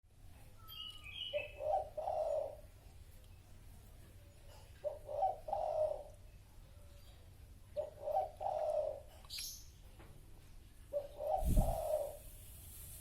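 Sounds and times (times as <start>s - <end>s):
faint low background noise: 0.1s - 13.0s
high bird chirps: 0.6s - 2.4s
dove cooing: 1.3s - 2.8s, 4.5s - 6.2s, 7.7s - 9.2s, 10.9s - 12.4s.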